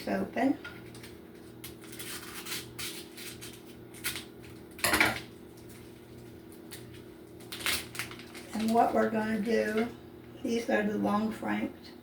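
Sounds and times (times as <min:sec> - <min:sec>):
low appliance hum: 0:00.0 - 0:12.0
food and utensils rustling: 0:00.6 - 0:10.0.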